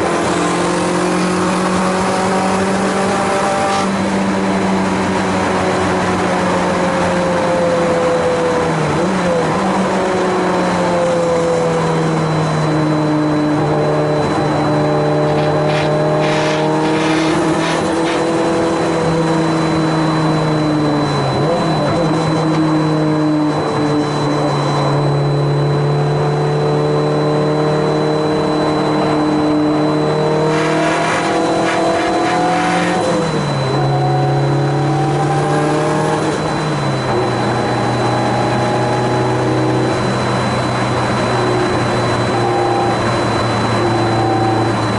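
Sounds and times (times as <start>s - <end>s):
race car engine under load: 0.0s - 44.9s.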